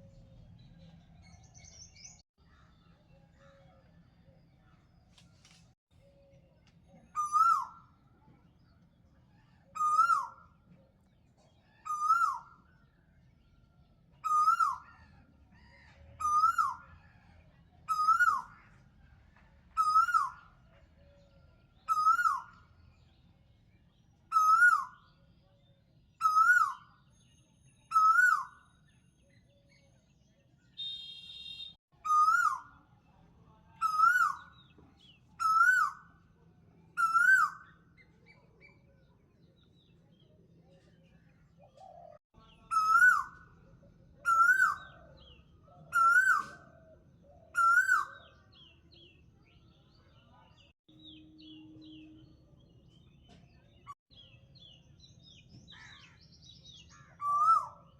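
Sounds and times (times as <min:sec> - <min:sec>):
bird calling: 0:24.3 - 0:25.0, 0:35.4 - 0:36.1, 0:37.0 - 0:37.8, 0:41.6 - 0:43.4, 0:44.2 - 0:46.6, 0:47.5 - 0:48.3, 0:57.0 - 0:57.9.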